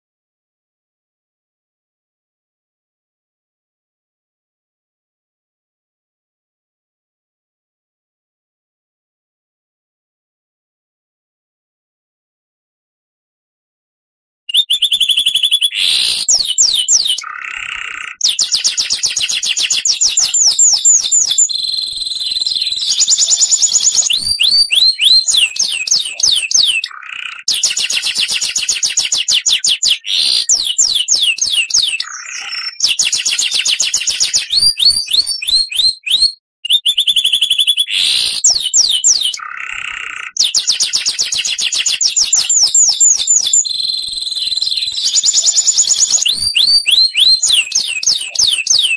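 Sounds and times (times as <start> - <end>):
bird singing whistles: 14.5 - 48.9.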